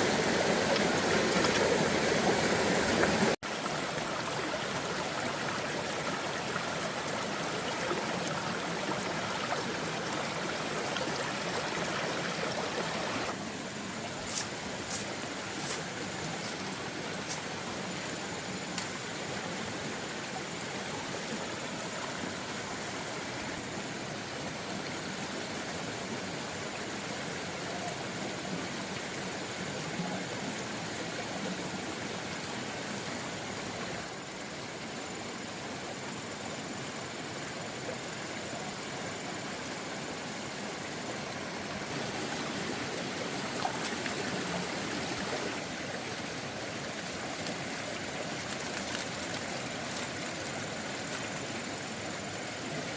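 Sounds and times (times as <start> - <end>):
water rushing: 0.0 - 52.9.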